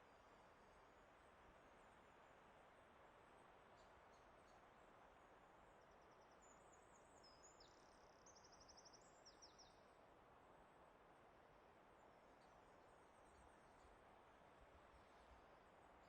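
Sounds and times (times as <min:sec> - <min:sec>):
songbird chirps and trills: 0:03.4 - 0:10.0.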